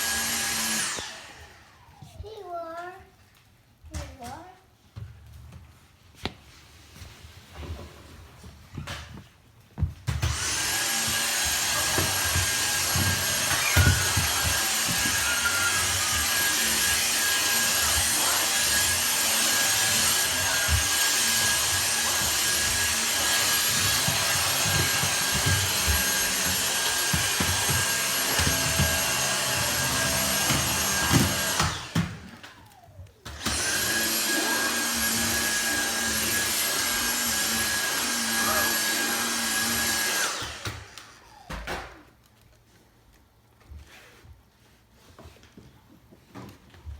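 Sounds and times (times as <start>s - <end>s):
vacuum cleaner running: 0.0s - 2.1s, 10.1s - 42.0s.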